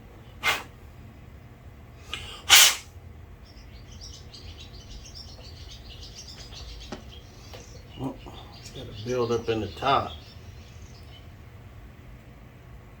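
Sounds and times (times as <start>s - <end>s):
birds chirping: 0.0s - 13.0s
low steady hum: 0.0s - 13.0s
short loud hiss: 0.4s - 0.7s, 2.1s - 2.9s.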